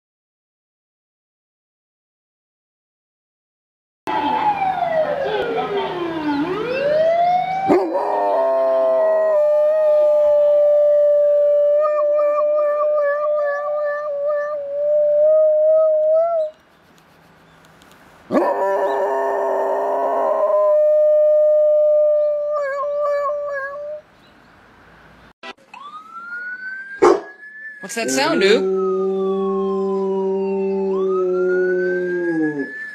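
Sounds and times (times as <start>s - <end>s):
emergency vehicle siren wailing: 4.1s - 16.6s, 18.3s - 24.0s, 25.6s - 32.9s
dog howling: 7.7s - 16.5s, 18.3s - 24.0s, 28.2s - 32.7s.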